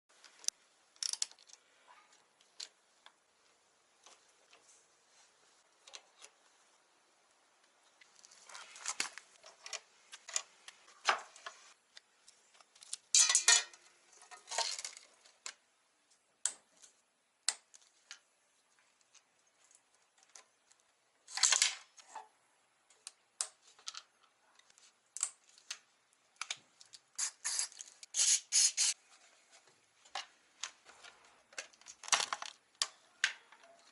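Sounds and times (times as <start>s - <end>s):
hand tools and metal parts clinking: 13.0s - 15.1s.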